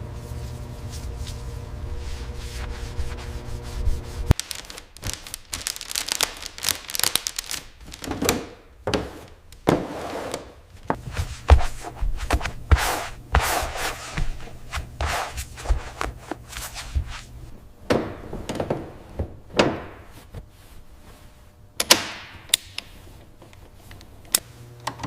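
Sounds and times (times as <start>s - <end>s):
mechanical hum: 0.0s - 25.0s
rubbing and scraping strokes: 0.4s - 6.2s, 9.1s - 17.4s.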